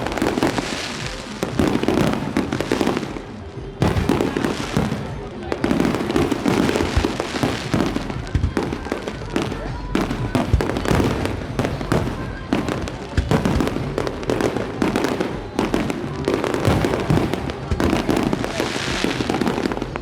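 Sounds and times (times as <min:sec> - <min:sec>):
fireworks and firecrackers banging: 0:00.0 - 0:20.0.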